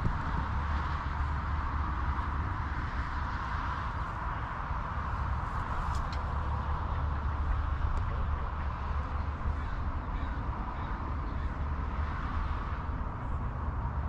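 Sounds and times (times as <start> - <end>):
crows cawing: 9.5 - 11.6.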